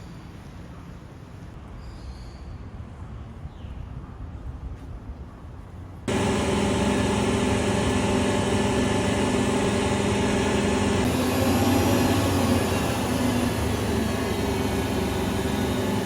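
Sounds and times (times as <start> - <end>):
heavy truck engine running: 6.1 - 16.0.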